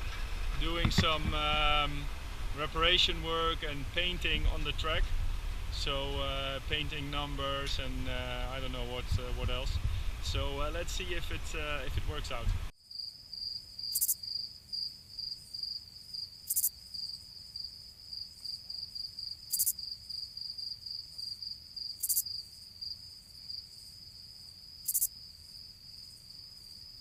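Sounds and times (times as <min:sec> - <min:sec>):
crickets trilling: 0:00.0 - 0:05.0, 0:12.8 - 0:27.0
hissy insect chirp: 0:00.0 - 0:11.8, 0:12.7 - 0:27.0.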